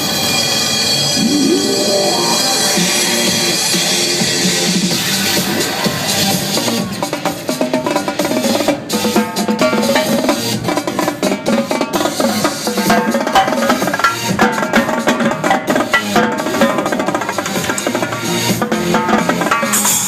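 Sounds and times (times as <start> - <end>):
live drumming: 0.1 - 20.0
electronic dance music with synth: 1.0 - 7.4.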